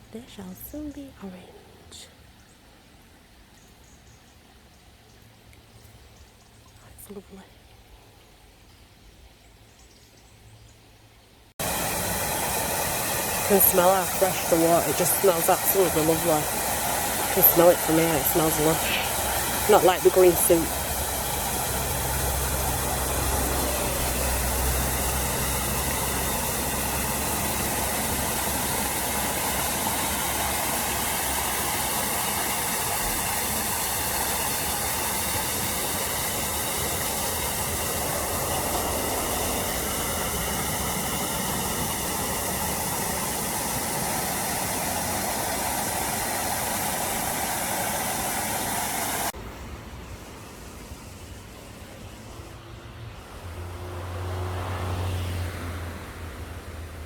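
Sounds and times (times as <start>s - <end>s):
rushing water hiss: 11.6s - 57.0s.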